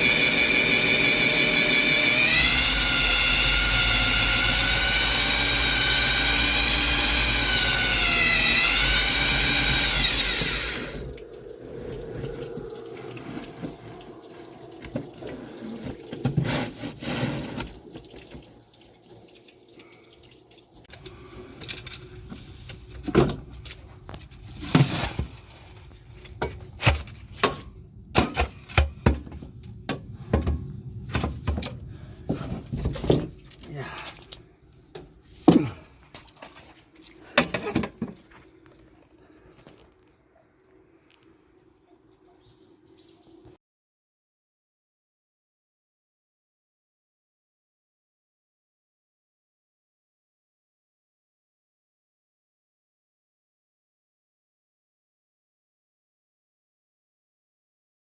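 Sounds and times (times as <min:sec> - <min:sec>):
power tool whining: 0:00.0 - 0:11.2.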